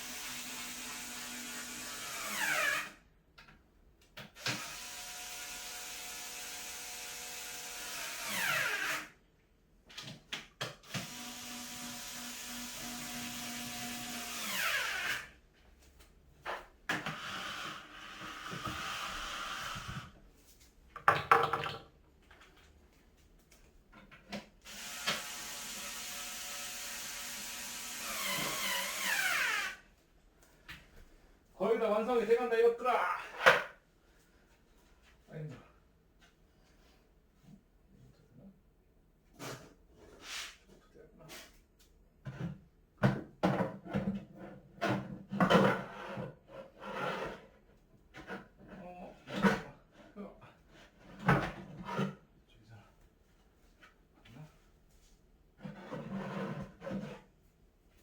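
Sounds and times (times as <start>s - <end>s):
electric drill motor whine: 4.5s - 9.0s, 10.9s - 15.2s, 24.7s - 29.8s.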